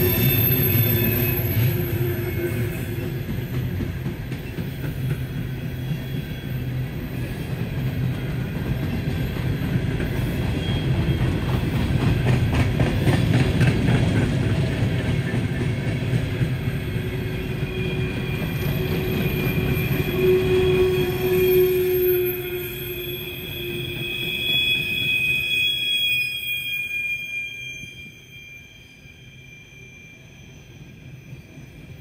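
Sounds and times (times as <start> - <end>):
freight train wheels rumbling: 0.0 - 25.8
thin wheel squeal: 16.8 - 32.0.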